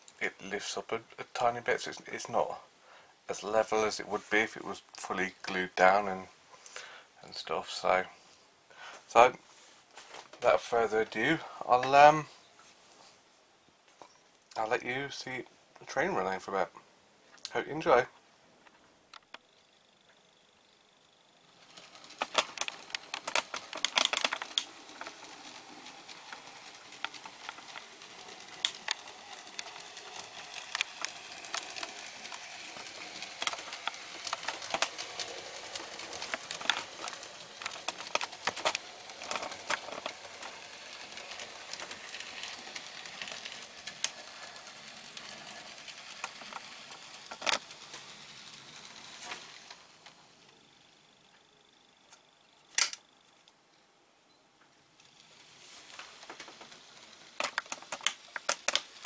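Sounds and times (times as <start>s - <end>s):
wheels clicking over rail joints: 10.3s - 12.2s, 21.3s - 50.8s, 55.0s - 59.0s
model train motor whirring: 20.9s - 52.0s, 55.0s - 59.0s.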